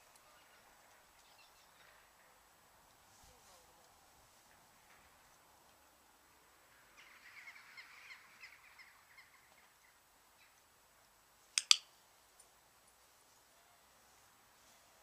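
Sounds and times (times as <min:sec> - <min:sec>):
sharp clicks: 0:11.6 - 0:11.9.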